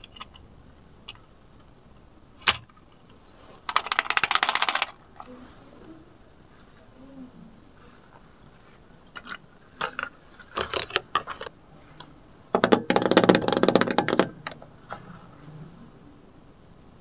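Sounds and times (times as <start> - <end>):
plastic toy clicks and knocks: 0.0 - 1.8, 2.4 - 3.0, 3.7 - 5.3, 9.1 - 11.5, 12.5 - 14.6
rapid plastic clattering: 2.4 - 5.3, 9.1 - 15.1.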